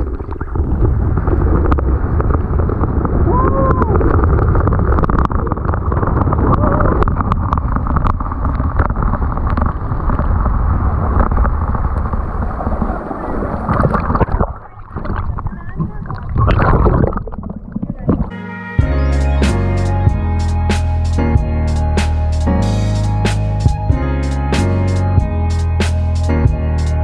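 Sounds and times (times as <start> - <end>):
wind buffeting microphone: 0.0 - 18.3.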